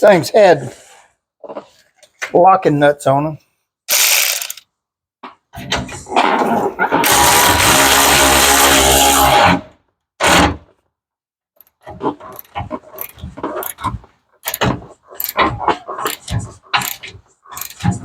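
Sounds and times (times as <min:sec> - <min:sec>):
power tool running: 0:03.9 - 0:04.6, 0:07.0 - 0:09.4
metallic clicks and knocks: 0:11.6 - 0:18.0.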